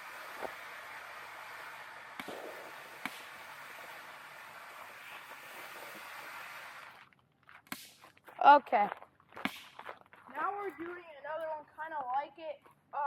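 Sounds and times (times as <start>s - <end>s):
firework fountain hissing: 0.0s - 7.1s
sharp firework pops: 2.1s - 4.0s, 7.7s - 8.0s, 9.4s - 9.9s.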